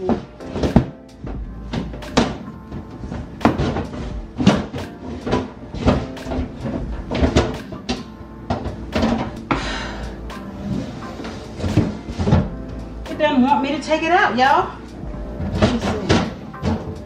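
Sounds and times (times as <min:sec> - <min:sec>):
plastic drawer knocking and clunking: 0:00.0 - 0:09.4, 0:15.3 - 0:17.0.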